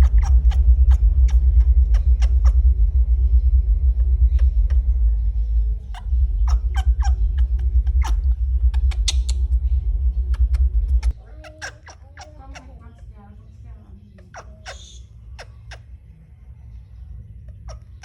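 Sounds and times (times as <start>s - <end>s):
sharp clicks and squeaks: 0.0s - 2.7s, 5.9s - 13.0s
loud steady low rumble: 0.0s - 11.3s.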